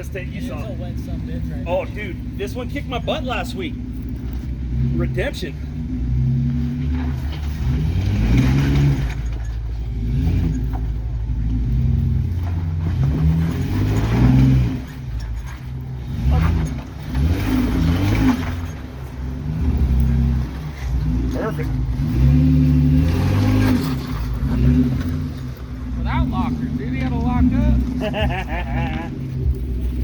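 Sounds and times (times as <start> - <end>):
engine revving in bursts: 4.7 - 9.3, 11.4 - 15.1, 16.0 - 30.0.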